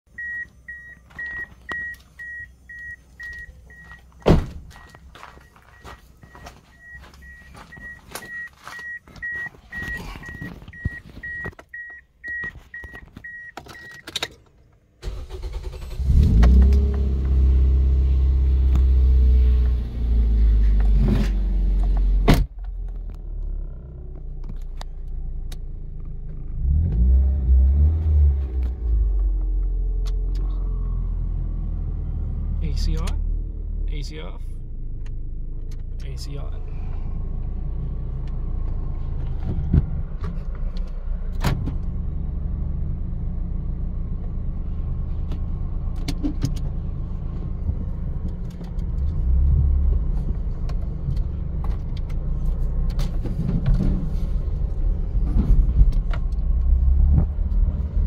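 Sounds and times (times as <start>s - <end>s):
dashboard warning chime beeping: 0.1s - 4.1s, 4.8s - 14.1s
car engine cranking and idling: 0.1s - 58.0s.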